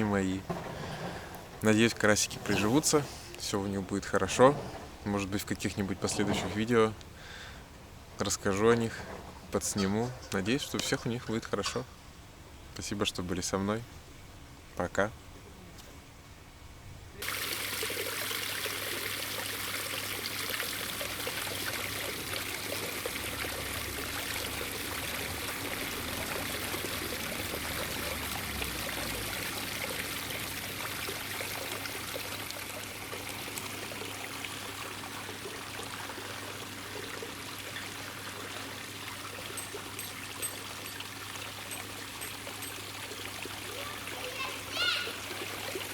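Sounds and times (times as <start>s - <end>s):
water trickling and pouring: 0.0s - 7.5s, 17.2s - 45.9s.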